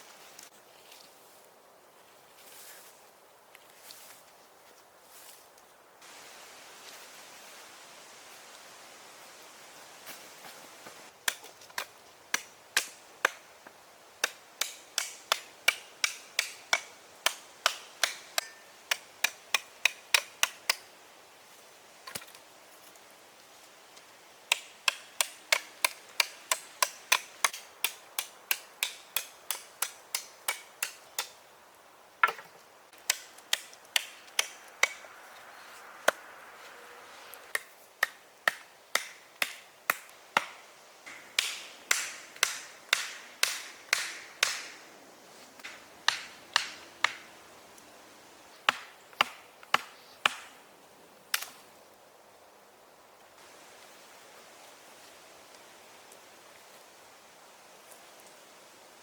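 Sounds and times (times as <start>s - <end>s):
hand tool striking wood: 14.2s - 20.8s, 24.5s - 31.4s, 32.2s - 35.0s, 37.5s - 44.8s, 45.6s - 47.3s, 48.7s - 50.5s.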